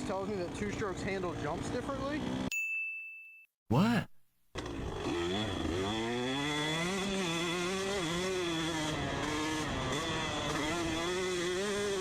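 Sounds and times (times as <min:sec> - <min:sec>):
dirt bike engine revving: 0:04.6 - 0:12.0.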